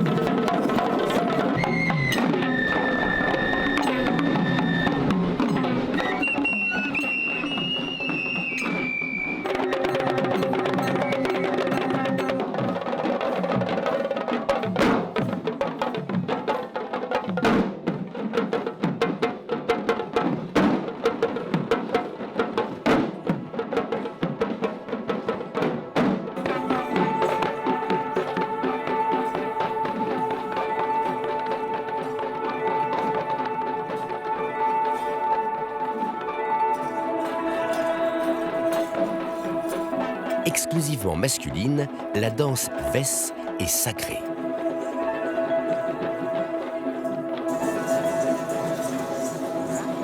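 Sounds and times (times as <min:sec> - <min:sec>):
fast rhythmic drumming: 0:00.0 - 0:08.8
traditional drumming: 0:00.0 - 0:50.0
high piping wind instrument: 0:44.2 - 0:50.0.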